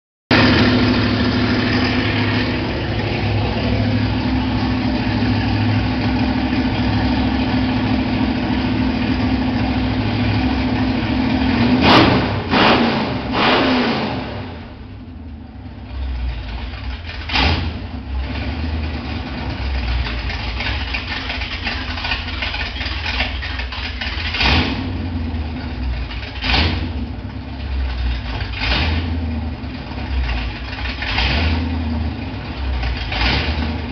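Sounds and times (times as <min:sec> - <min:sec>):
car engine revving: 0:00.3 - 0:33.9.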